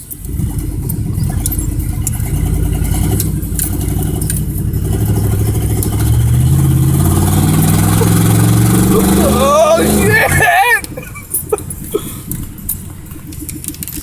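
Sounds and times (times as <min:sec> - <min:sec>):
truck engine accelerating: 0:00.0 - 0:14.0.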